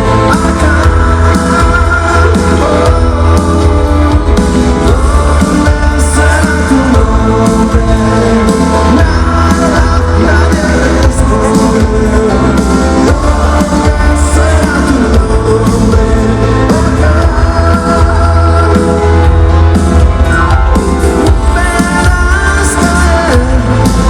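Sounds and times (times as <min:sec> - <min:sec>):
lead vocal singing: 0:00.0 - 0:24.0
live rock band playing: 0:00.0 - 0:24.0.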